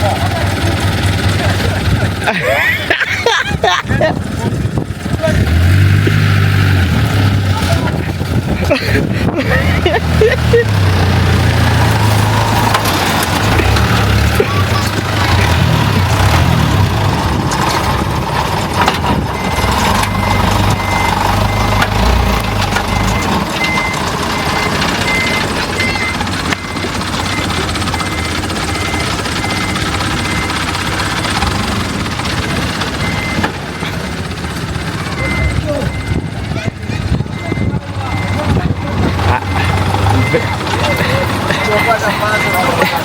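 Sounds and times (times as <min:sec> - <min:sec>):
vehicle engine running: 0:00.0 - 0:43.0
reversing alarm beeps: 0:19.4 - 0:30.8, 0:33.0 - 0:33.9, 0:35.1 - 0:43.0.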